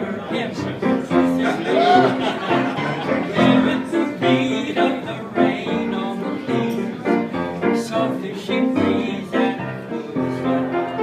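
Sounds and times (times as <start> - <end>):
pop song with piano: 0.0 - 11.0.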